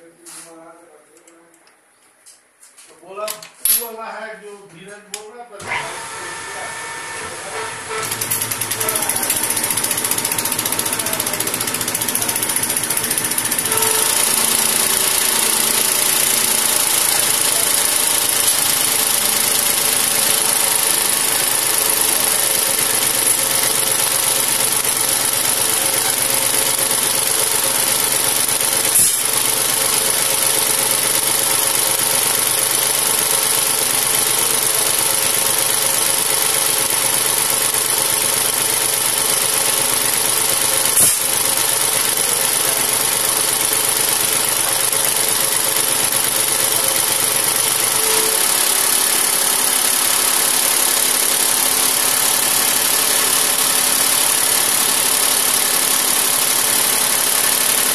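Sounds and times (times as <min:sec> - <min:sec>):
machine whining: 0:05.6 - 0:33.0, 0:33.8 - 0:57.9.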